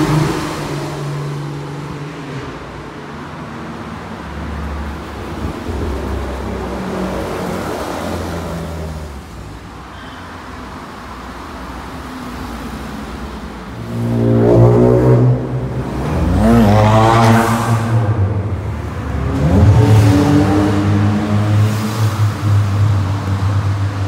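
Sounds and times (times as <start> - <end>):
car engine accelerating hard: 13.8 - 24.0.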